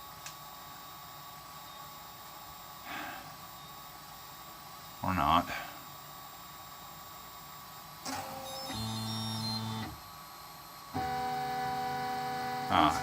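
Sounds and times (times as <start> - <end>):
stepper motors whining: 8.1 - 10.0, 11.0 - 13.0.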